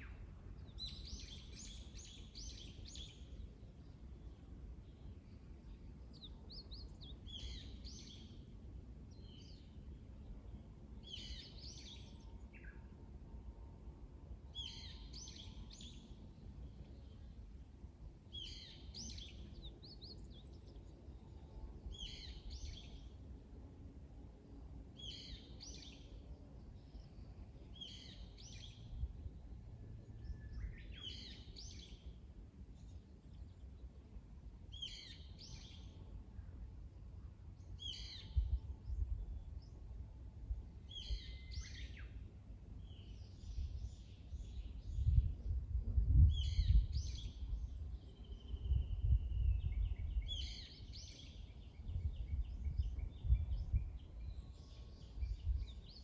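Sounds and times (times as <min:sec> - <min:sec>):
songbird singing: 0:00.0 - 0:23.5, 0:24.4 - 0:56.0
low gusty rumble: 0:43.4 - 0:50.5, 0:51.6 - 0:54.4.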